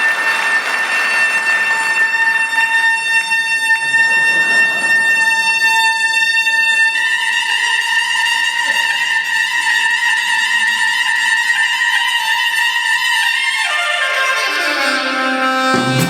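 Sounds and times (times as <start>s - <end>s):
soprano saxophone sustained note: 13.7s - 16.0s.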